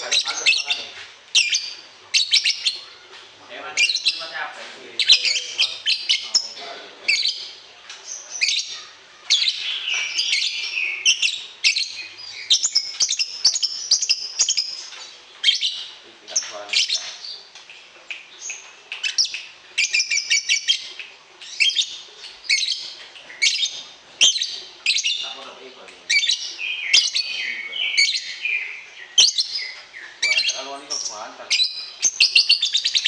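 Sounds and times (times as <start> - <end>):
songbird chirps and trills: 0.0 - 33.0.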